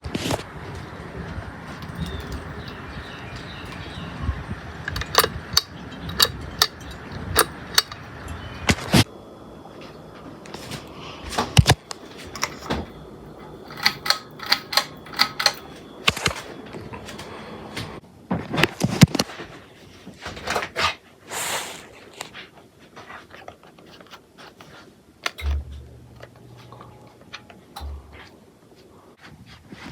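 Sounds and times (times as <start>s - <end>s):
ceiling fan whirring: 0.0s - 29.9s
sharp clicks: 4.9s - 9.0s, 13.7s - 16.4s.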